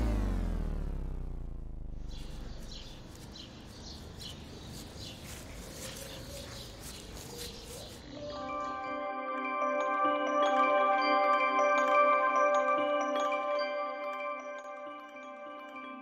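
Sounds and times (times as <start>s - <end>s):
low background rumble: 0.0s - 3.7s
birds chirping: 0.0s - 8.9s
melodic mallet percussion music: 8.2s - 16.0s.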